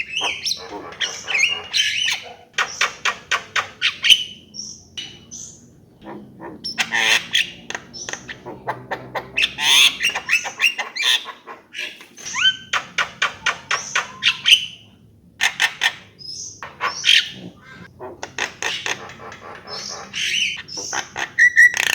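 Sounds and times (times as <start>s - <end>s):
bird singing squawks and whistles: 0.0s - 3.0s, 6.6s - 14.9s, 19.7s - 21.9s.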